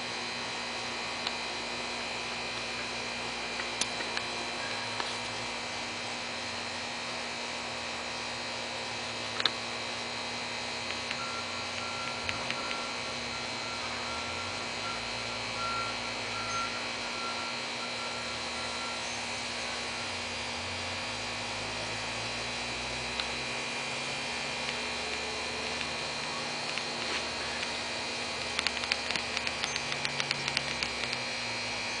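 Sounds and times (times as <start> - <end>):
background hum and hiss: 0.0 - 32.0
small clicks: 24.6 - 26.0, 26.6 - 27.8, 28.4 - 31.2.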